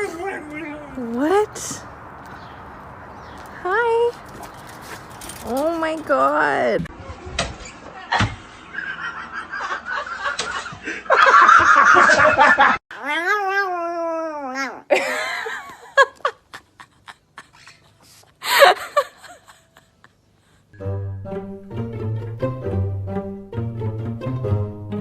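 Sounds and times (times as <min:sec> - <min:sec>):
people laughing: 0:08.7 - 0:12.8.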